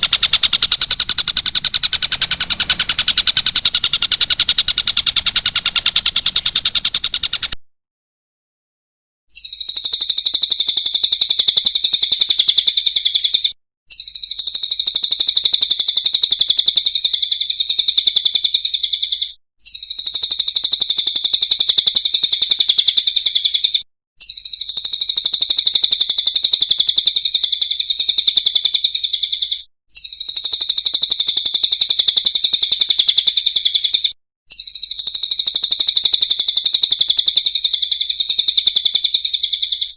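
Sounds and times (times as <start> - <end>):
bird call: 0.0 - 7.6
high rapid buzzy bird trill: 0.0 - 7.6, 9.3 - 39.9.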